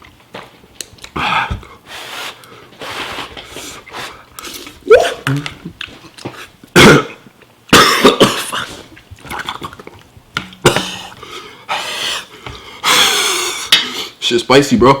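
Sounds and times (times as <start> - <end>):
man coughing: 6.8 - 8.8.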